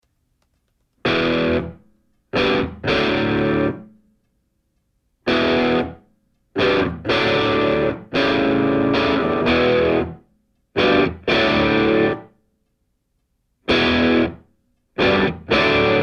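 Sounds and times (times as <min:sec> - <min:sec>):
distorted electric guitar chords: 0:01.0 - 0:01.8, 0:02.4 - 0:03.9, 0:05.3 - 0:06.0, 0:06.6 - 0:10.2, 0:10.8 - 0:12.3, 0:13.7 - 0:14.4, 0:15.0 - 0:16.0.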